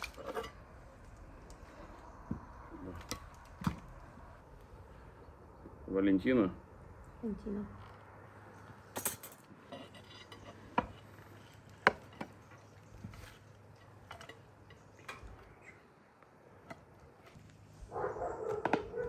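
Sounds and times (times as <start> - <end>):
cutlery clinking on plates: 9.0 - 11.0.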